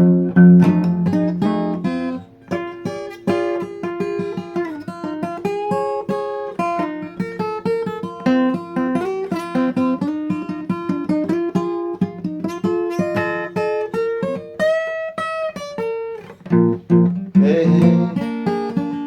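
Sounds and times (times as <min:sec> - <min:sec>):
acoustic guitar plucking: 0:00.0 - 0:19.0.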